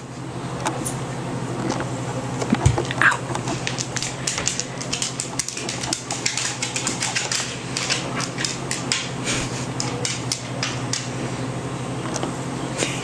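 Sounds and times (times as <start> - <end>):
dog bowl clattering on floor: 3.6 - 9.1.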